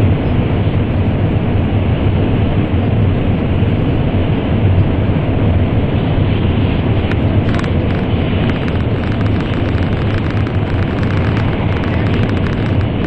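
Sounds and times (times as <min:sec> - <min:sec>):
train rumbling in tunnel: 0:00.0 - 0:13.0
faint ticking: 0:07.1 - 0:13.0.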